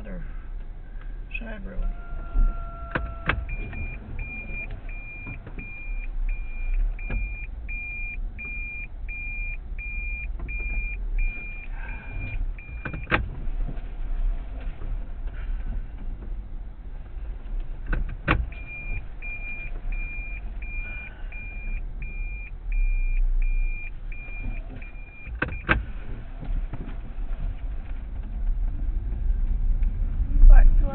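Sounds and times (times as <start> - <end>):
car engine idling rumble: 0.0 - 30.9
car warning chime beeping: 1.4 - 13.2, 18.3 - 25.8.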